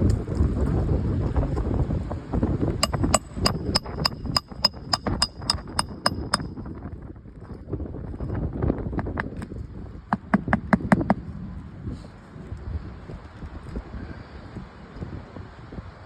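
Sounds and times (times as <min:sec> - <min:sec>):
wind on microphone: 0:00.0 - 0:16.0
hammer striking nail: 0:02.8 - 0:06.6.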